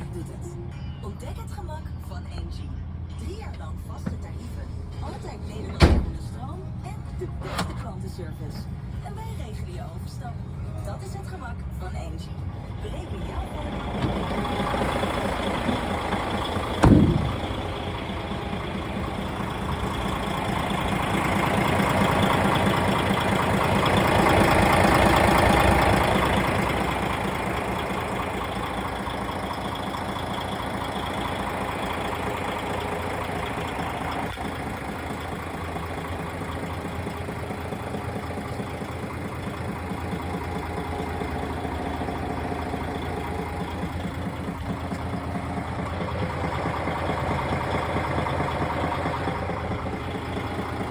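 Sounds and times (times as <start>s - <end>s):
diesel truck engine idling: 0.0s - 50.9s
loud knock: 16.8s - 17.6s.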